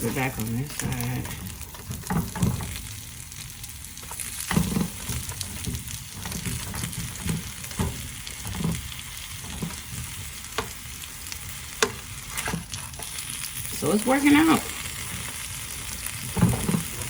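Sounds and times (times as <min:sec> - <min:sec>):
bread sizzling in a pan: 0:00.0 - 0:17.0
knocks of handling bread in pan: 0:00.8 - 0:02.8, 0:04.4 - 0:10.8, 0:16.2 - 0:17.0.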